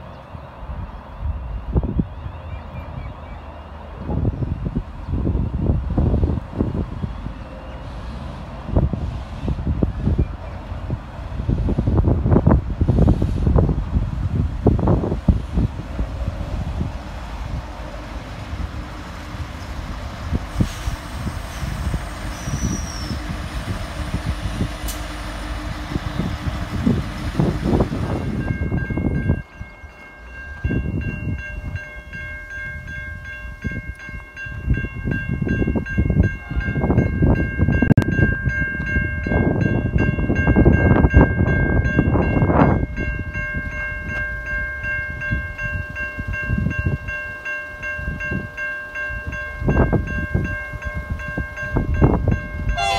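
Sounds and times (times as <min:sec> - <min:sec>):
diesel railcar rumbling: 0:00.0 - 0:52.9
wind gusts on microphone: 0:00.4 - 0:52.9
level crossing warning bells: 0:23.1 - 0:52.9.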